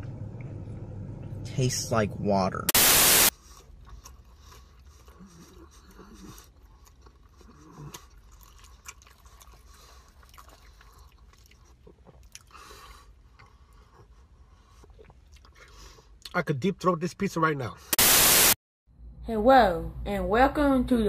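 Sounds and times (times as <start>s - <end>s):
person chewing food: 3.4s - 16.3s.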